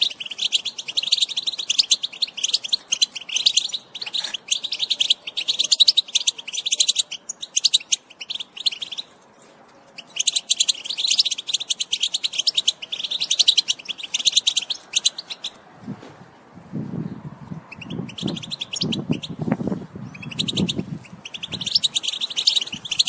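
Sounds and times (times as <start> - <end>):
finches twittering: 10.0 - 15.6, 17.7 - 23.0.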